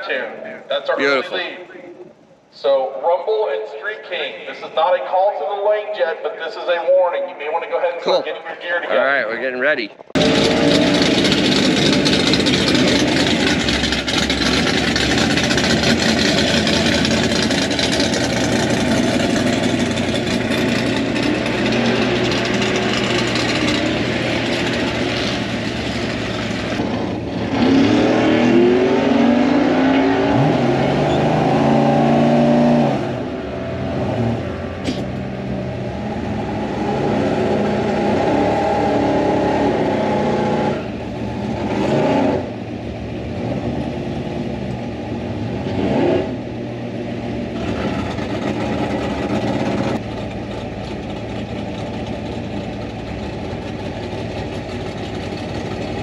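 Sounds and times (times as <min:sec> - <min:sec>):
car engine running at low revs: 0:09.7 - 0:56.0
engine revving hard: 0:10.2 - 0:42.6, 0:45.6 - 0:46.4.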